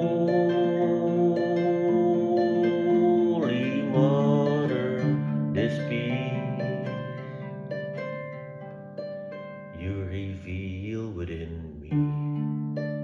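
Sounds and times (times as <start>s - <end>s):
wavering held tone: 0.0s - 8.5s
harp playing: 0.0s - 13.0s.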